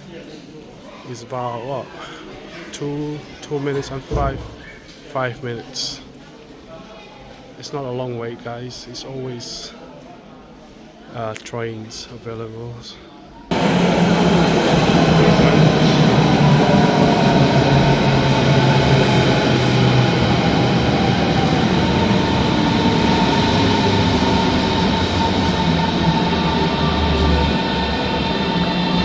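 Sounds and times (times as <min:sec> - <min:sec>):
train rail and wheel noise: 0:13.5 - 0:29.0.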